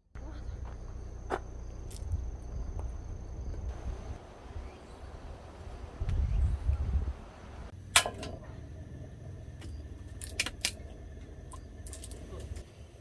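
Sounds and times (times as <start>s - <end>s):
low rumble: 0.0s - 7.7s.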